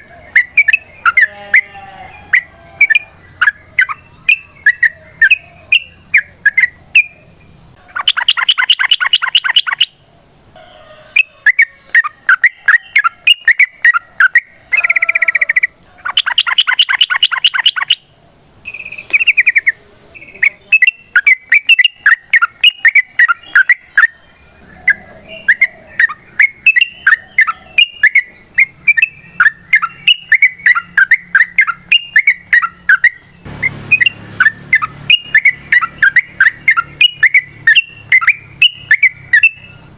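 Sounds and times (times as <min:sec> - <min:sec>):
bulbuls chirping: 0:00.0 - 0:39.9.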